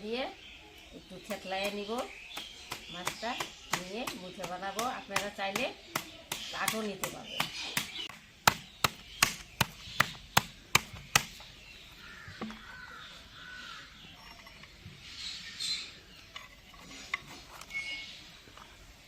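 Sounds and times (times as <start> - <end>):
wooden stick beating fish: 2.4 - 11.5.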